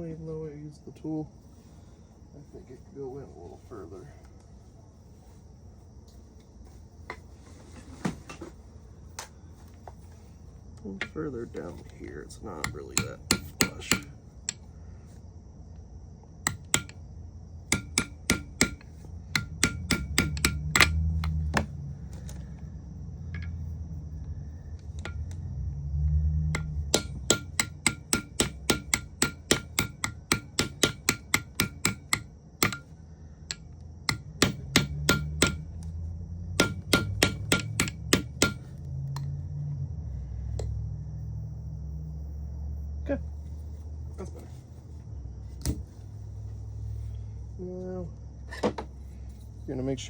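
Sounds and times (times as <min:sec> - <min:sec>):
hammer tapping metal: 0:12.0 - 0:14.7, 0:16.4 - 0:17.0, 0:17.7 - 0:21.7, 0:25.0 - 0:25.4, 0:26.5 - 0:35.8, 0:36.6 - 0:39.3.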